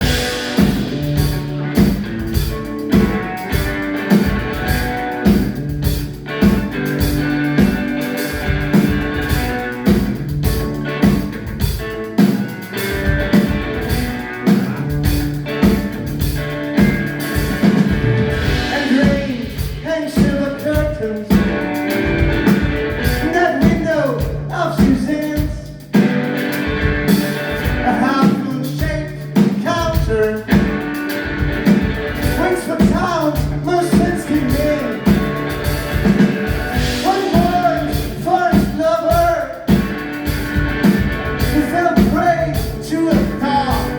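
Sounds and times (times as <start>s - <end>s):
band playing live: 0.0s - 43.9s
drums beating: 0.0s - 43.9s
person singing: 18.4s - 21.6s, 32.3s - 35.2s, 36.9s - 39.7s, 41.4s - 43.9s.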